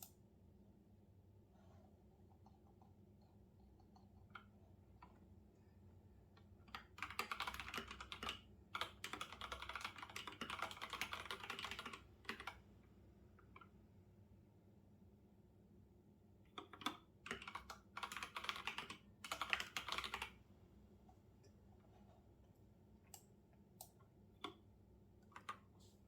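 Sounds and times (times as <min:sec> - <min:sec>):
typing on computer keyboard: 0:06.6 - 0:12.6, 0:16.5 - 0:20.4, 0:25.2 - 0:25.7.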